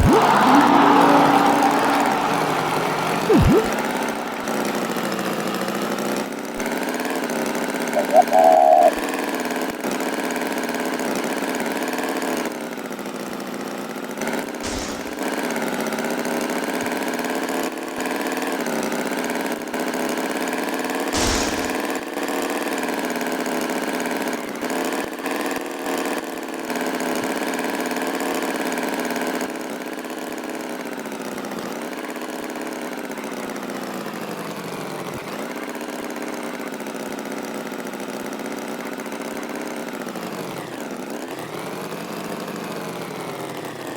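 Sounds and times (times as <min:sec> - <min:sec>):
tractor engine running: 0:14.6 - 0:15.3.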